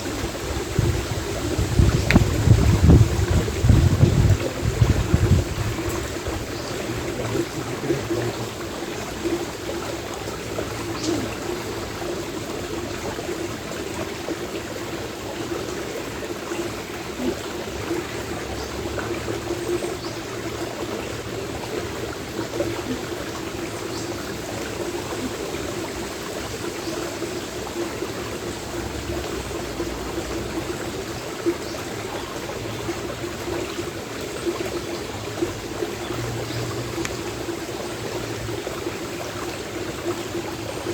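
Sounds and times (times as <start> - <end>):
strong wind rumble: 0.0 - 8.2
stream flowing: 0.0 - 40.9.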